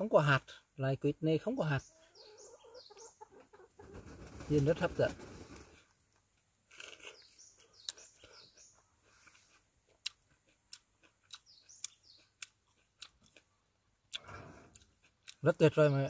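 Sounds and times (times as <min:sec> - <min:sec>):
faint bird chirps: 0:01.3 - 0:04.0, 0:07.0 - 0:09.6, 0:11.2 - 0:12.5.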